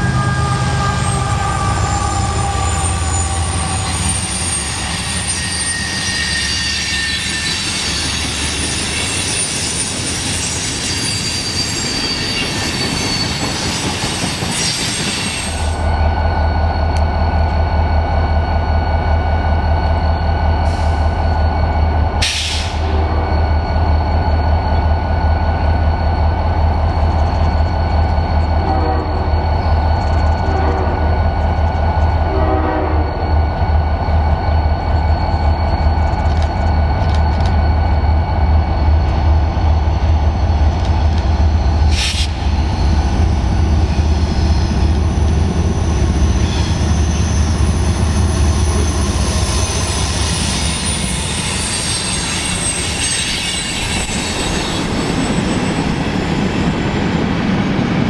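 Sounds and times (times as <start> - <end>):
locomotive horn blasts: 0.0 - 4.3, 22.7 - 23.4, 28.6 - 29.3, 30.4 - 31.1, 32.3 - 33.2
diesel locomotive rumbling: 0.0 - 58.0
train wheels squealing: 0.0 - 58.0.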